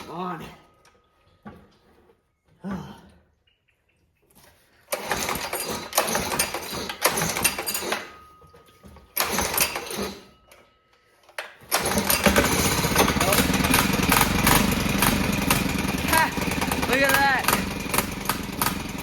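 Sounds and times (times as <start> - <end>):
engine pull-start cord: 4.8 - 8.3, 9.2 - 10.4, 11.4 - 19.0
small engine running roughly: 11.7 - 19.0.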